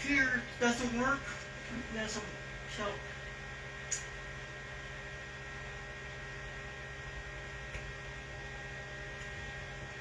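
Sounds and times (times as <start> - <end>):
electrical mains hum: 0.0 - 10.0
sharp click: 3.9 - 4.1.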